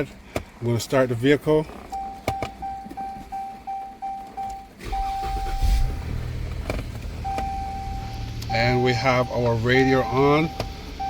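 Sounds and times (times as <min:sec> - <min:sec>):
car engine starting and idling: 0:00.0 - 0:11.0
dashboard warning chime: 0:02.0 - 0:06.2, 0:07.2 - 0:11.0.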